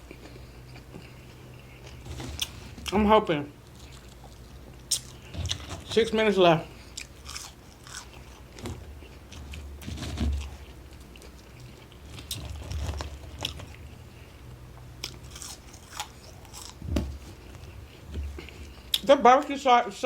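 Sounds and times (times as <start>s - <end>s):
chewing food with crunches: 0.0s - 3.0s, 3.6s - 6.0s, 6.7s - 19.1s.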